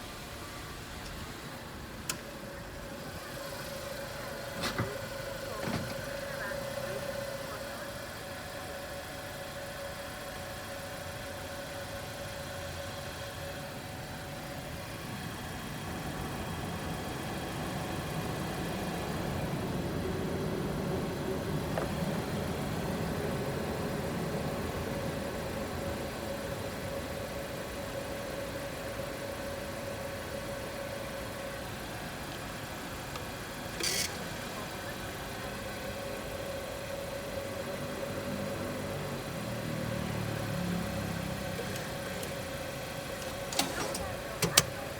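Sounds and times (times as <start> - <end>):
car engine idling: 0.0 - 44.9
click: 2.0 - 2.2.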